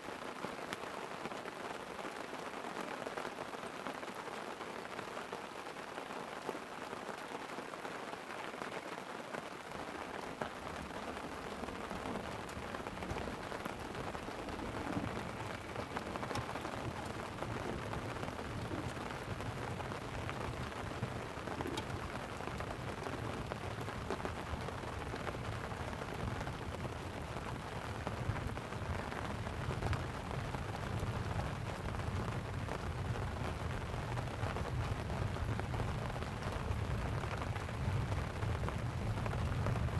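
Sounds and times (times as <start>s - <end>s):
light rain pattering on a tent: 0.0s - 39.9s
distant thunder rumble: 9.7s - 34.0s.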